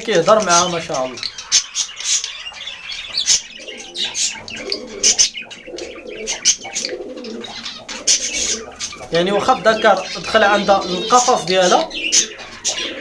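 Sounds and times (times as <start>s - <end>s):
budgerigar chattering: 0.0s - 13.0s.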